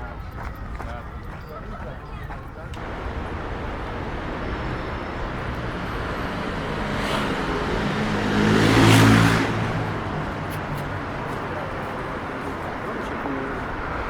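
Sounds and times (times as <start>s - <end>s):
vehicle driving past: 2.8s - 13.7s.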